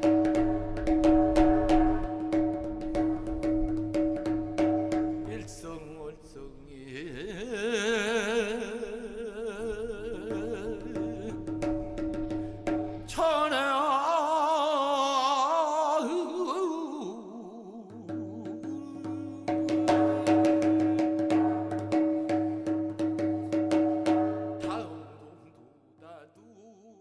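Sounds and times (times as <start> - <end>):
hourglass drum strokes: 0.0 - 5.7, 18.1 - 24.9
person singing with vibrato: 5.3 - 11.9, 12.9 - 21.8, 24.5 - 27.0.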